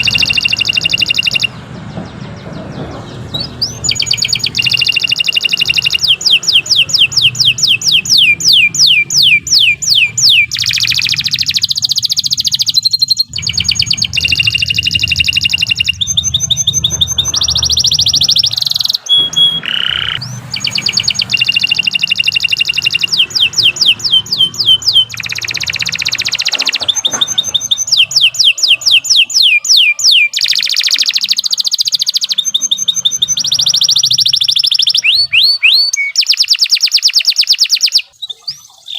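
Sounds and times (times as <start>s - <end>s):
canary singing rapid trills: 0.0s - 38.9s.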